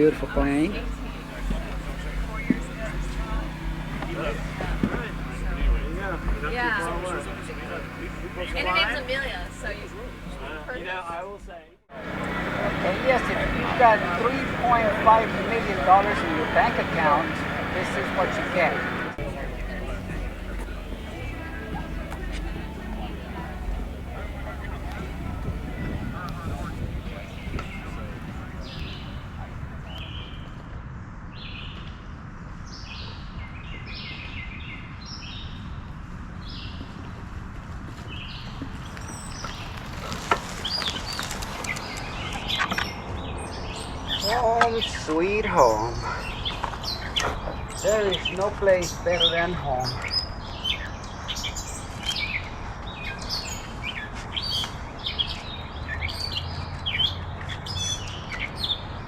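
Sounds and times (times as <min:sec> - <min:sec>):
low steady rumble: 0:00.0 - 0:30.3
songbirds chirping: 0:00.0 - 0:30.3, 0:38.2 - 0:52.4
steady low background noise: 0:00.0 - 0:30.3
songbird chirping: 0:12.0 - 0:30.3.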